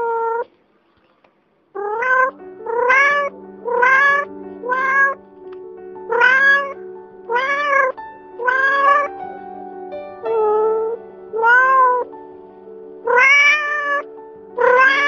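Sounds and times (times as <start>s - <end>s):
cat meowing: 0.0s - 0.5s, 1.8s - 5.2s, 6.1s - 9.1s, 10.3s - 12.1s, 13.0s - 15.0s
soft background music: 2.0s - 15.0s.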